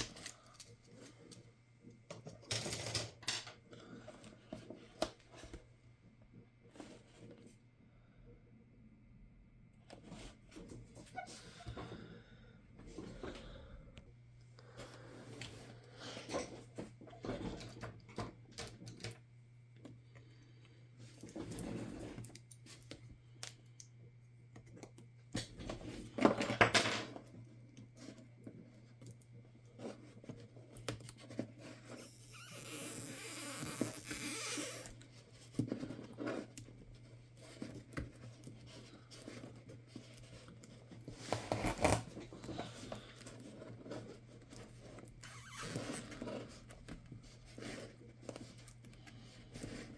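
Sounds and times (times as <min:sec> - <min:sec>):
scraping tearing noise: 0:32.0 - 0:35.0.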